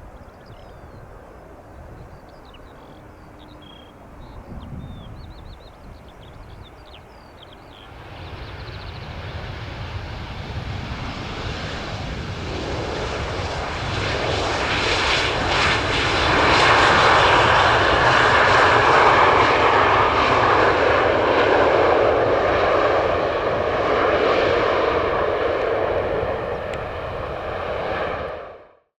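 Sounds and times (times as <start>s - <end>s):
jet engines roaring: 1.0s - 28.7s
steady low rumble: 7.9s - 28.5s.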